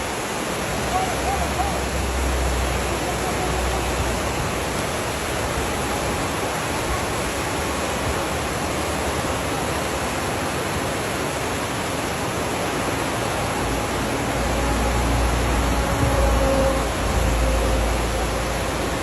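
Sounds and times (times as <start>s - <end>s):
whitewater rapids rushing: 0.0s - 19.0s.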